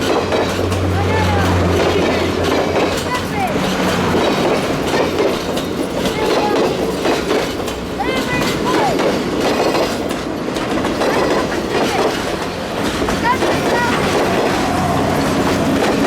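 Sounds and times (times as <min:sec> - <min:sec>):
train cars rumbling by: 0:00.0 - 0:16.0
wheels clattering over rail joints: 0:00.0 - 0:16.0
high wheel squeals: 0:13.2 - 0:16.0.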